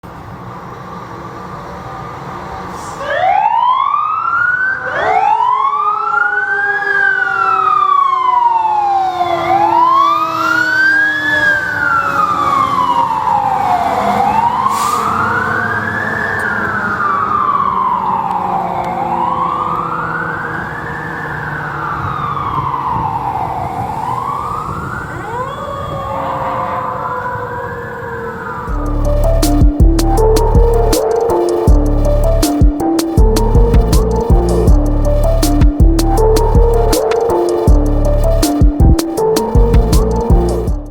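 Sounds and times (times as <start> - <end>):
fire engine siren wailing: 0.2 - 40.9
second siren tone rising: 2.5 - 40.9
truck rumble: 11.2 - 25.9, 26.8 - 40.9.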